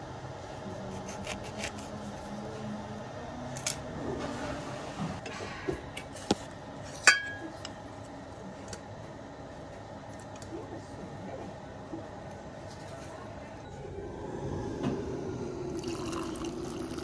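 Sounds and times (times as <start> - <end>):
knife cutting lemon on stone: 0.9 - 2.0.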